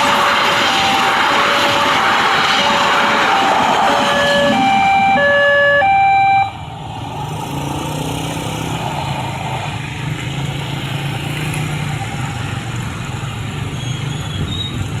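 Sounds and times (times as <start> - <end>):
two-tone warning signal: 0.0 - 6.6.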